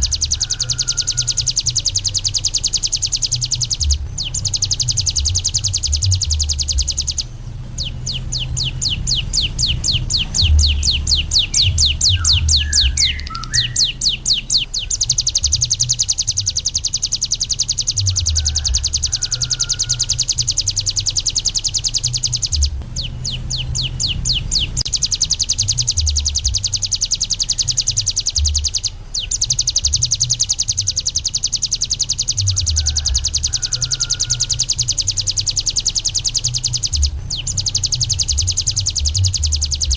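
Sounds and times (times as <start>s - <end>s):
songbird singing fast high trill: 0.0s - 39.9s.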